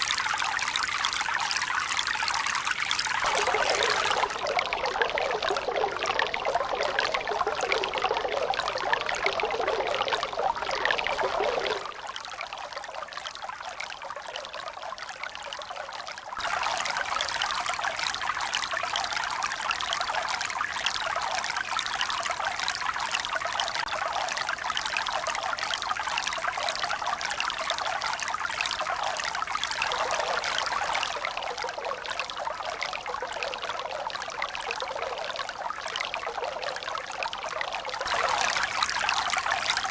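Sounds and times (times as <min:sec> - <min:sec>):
running water pouring: 0:00.0 - 0:05.8, 0:16.4 - 0:20.4, 0:38.0 - 0:39.9.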